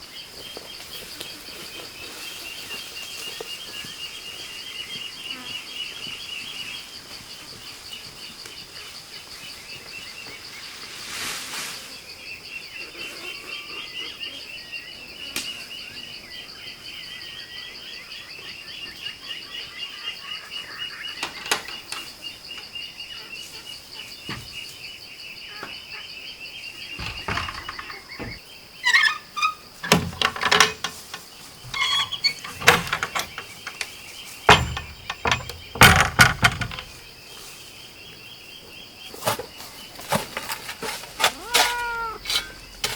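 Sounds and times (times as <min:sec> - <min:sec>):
sharp knocks and clatters: 0:27.0 - 0:28.4, 0:29.8 - 0:37.1
wavering chirping: 0:41.2 - 0:42.8.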